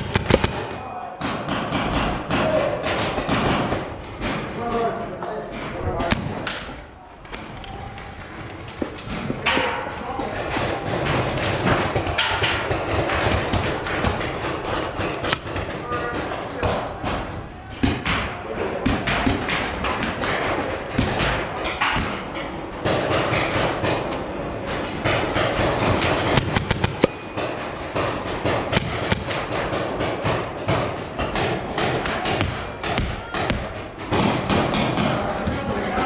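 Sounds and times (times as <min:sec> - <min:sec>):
paintball markers firing: 0:00.0 - 0:00.8, 0:28.7 - 0:35.1
paintballs thudding against walls: 0:25.0 - 0:35.5.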